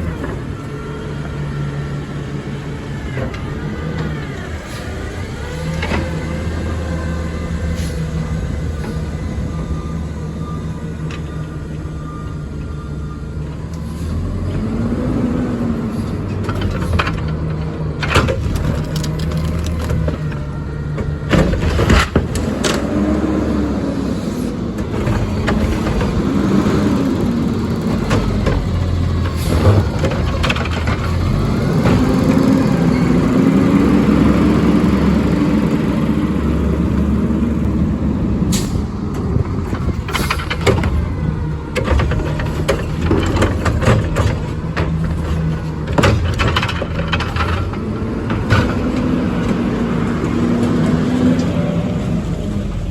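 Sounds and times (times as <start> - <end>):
diesel engine revving: 0.0 - 52.9
air brake hisses: 38.5 - 38.9
metal bangs and clanks: 38.5 - 49.5.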